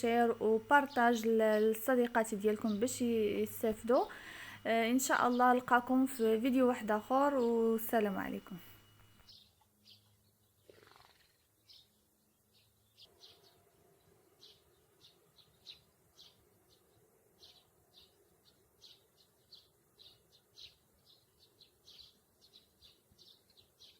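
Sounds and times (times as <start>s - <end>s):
faint low hum: 0.0s - 10.7s
faint bird chirping: 0.0s - 23.9s.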